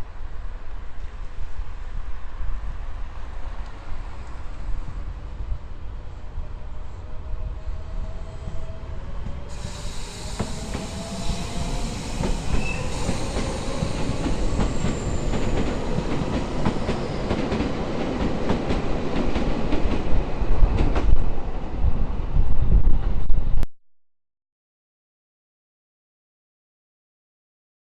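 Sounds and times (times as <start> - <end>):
faint wheel squeal: 9.5 - 15.3
train wheels clicking over rail joints: 9.5 - 21.2.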